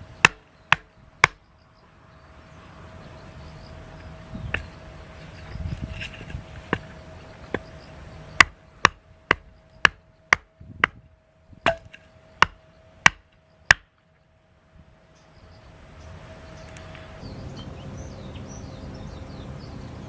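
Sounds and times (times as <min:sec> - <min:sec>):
axe chopping firewood: 0:00.2 - 0:01.4, 0:06.3 - 0:06.9, 0:08.4 - 0:11.0, 0:11.6 - 0:13.9.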